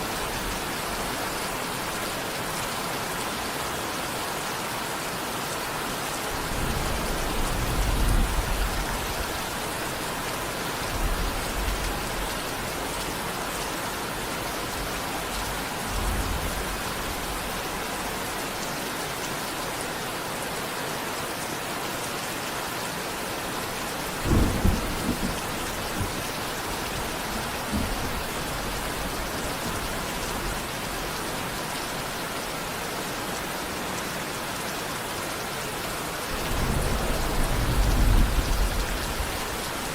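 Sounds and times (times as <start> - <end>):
heavy rain: 0.0 - 39.9
distant thunder rumbling: 24.0 - 31.2, 36.3 - 39.9
sharp thunder clap: 24.2 - 26.3.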